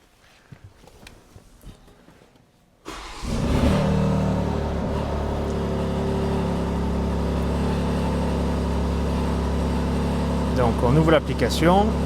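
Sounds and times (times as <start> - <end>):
car engine starting and idling: 2.8 - 12.0.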